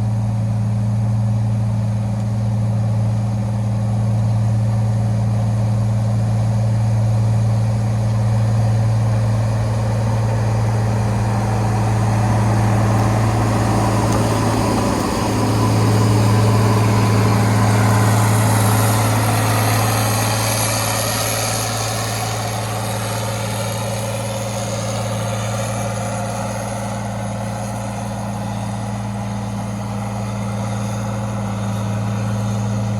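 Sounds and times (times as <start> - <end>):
engine humming: 0.0 - 32.9
rough wash of noise: 7.0 - 32.9.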